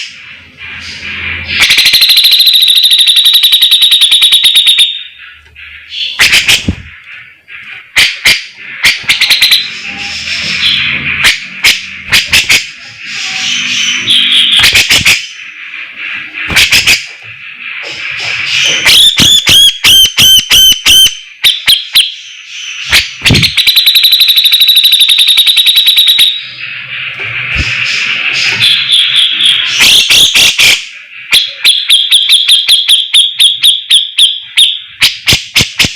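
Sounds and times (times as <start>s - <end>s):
fast rattling bird trill: 0.8s - 20.0s.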